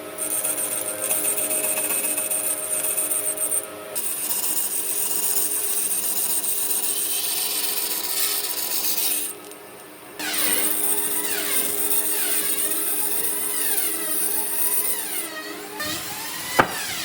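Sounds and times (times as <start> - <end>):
power tool grinding wood: 10.4 - 17.0.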